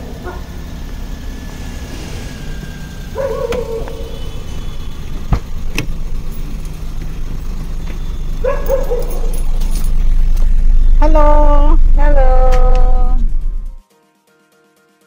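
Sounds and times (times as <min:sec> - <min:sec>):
car engine rumbling: 0:00.0 - 0:13.8
short wavering whine: 0:00.4 - 0:05.3.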